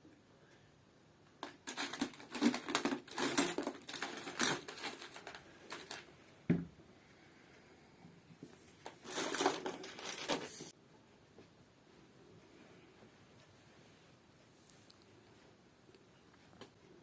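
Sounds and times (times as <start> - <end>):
small hard objects clattering: 1.4 - 6.1, 8.8 - 10.7.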